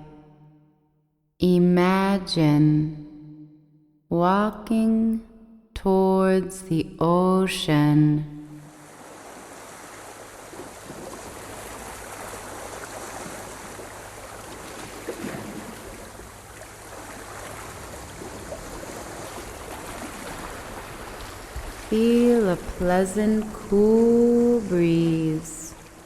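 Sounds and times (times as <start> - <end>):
sea waves washing on shore: 8.6 - 26.0.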